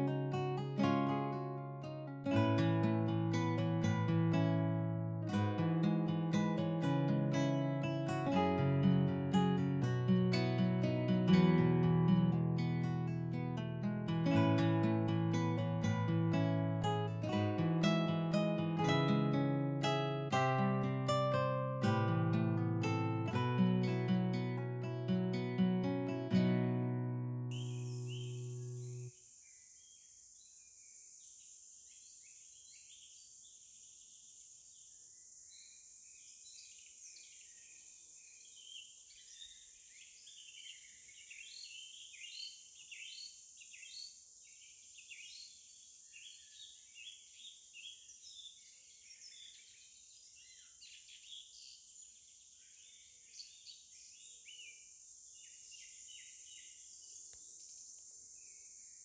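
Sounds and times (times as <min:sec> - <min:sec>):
birds chirping: 0:27.4 - 0:59.0
high insect drone: 0:27.5 - 0:40.4, 0:41.5 - 0:47.5, 0:53.6 - 0:59.0.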